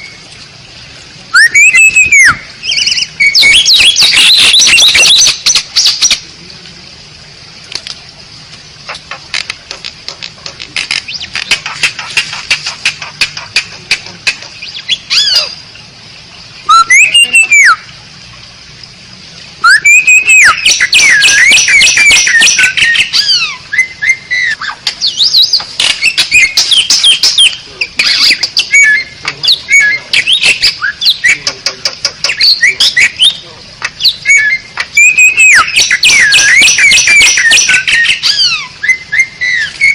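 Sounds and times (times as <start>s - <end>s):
starling singing: 1.3s - 6.3s, 10.1s - 15.7s, 16.6s - 17.9s, 19.6s - 39.9s
rapid dry clicks: 7.7s - 14.6s.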